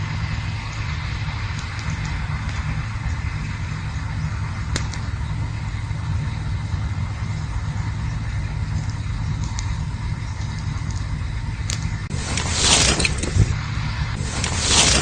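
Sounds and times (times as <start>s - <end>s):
campfire crackling: 0.0s - 15.0s
sharp pop of fire: 4.7s - 5.1s.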